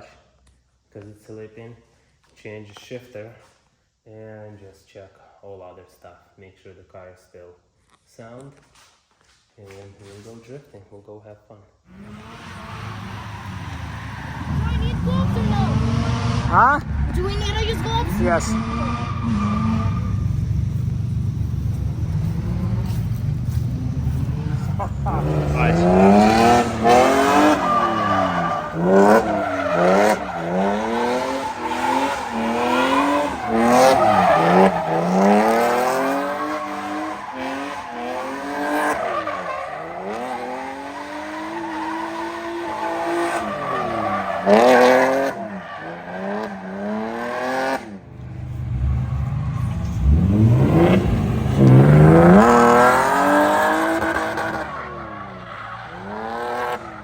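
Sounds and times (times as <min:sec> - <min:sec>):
car engine revving hard: 0:11.9 - 0:56.9
tyres squealing and skidding: 0:11.9 - 0:57.0.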